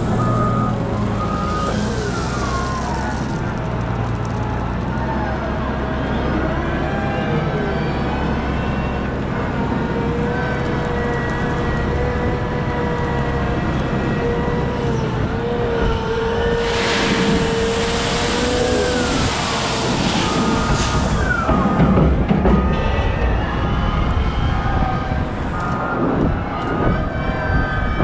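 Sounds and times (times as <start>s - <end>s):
broad hissing rush: 0.0s - 3.5s, 16.6s - 22.0s
diesel machinery rumbling: 0.0s - 28.0s.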